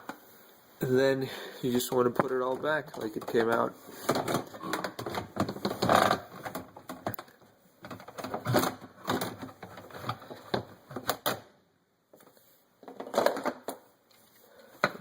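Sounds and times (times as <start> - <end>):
plastic parts clicking and clattering: 1.9 - 11.5, 12.2 - 13.9, 14.8 - 15.0.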